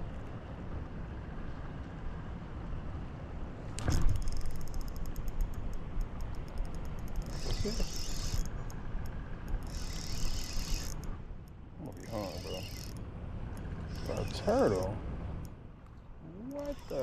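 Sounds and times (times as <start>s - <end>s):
rapid high clicking: 4.1s - 11.2s.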